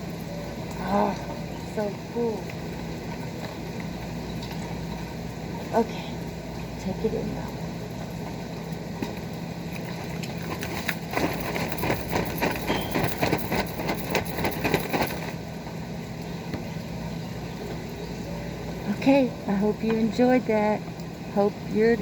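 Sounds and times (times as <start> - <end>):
rain falling: 0.0 - 22.0
quick irregular taps and clatter: 9.8 - 15.4.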